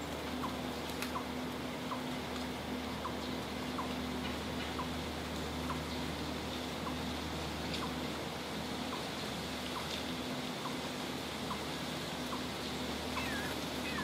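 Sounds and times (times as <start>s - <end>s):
steady outdoor hiss: 0.0s - 14.0s
falling bird call: 13.2s - 14.0s.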